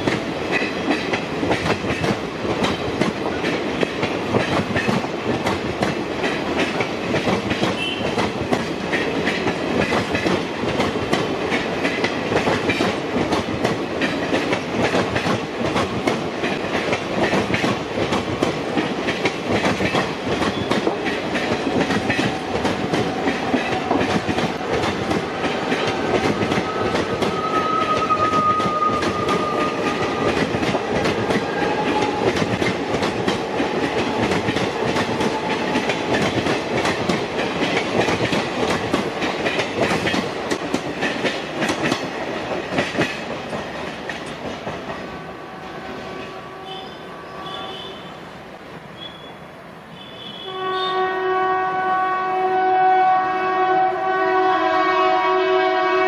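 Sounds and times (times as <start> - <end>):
train wheels clattering over joints: 0.0 - 45.1
train rushing rumble: 0.0 - 48.9
faint wheel squeal: 49.0 - 49.4.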